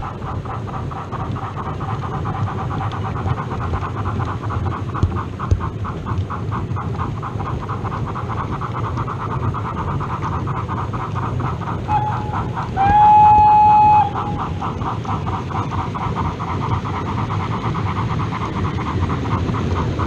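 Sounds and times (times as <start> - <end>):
model steam locomotive chuffing: 0.0 - 20.0
locomotive whistle: 11.9 - 14.6.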